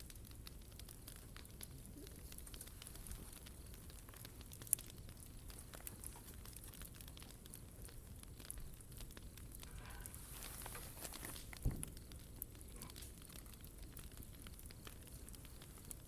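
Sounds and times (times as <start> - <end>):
wood bonfire crackling: 0.0 - 16.0.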